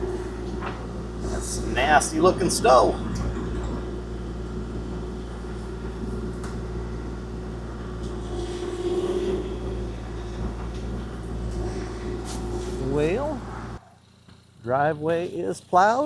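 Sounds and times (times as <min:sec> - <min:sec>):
mini excavator diesel engine: 0:00.0 - 0:16.0.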